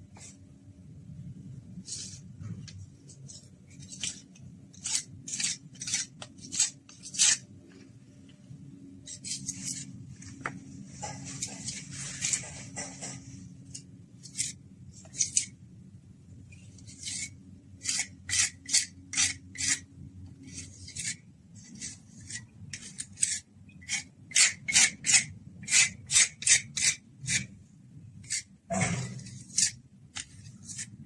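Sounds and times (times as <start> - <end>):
hand tool rasping: 16.9 - 19.8, 28.2 - 30.9.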